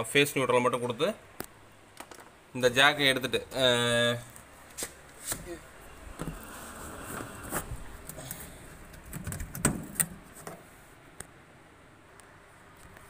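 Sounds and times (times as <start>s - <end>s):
clicks and knocks of connector: 1.4s - 2.3s.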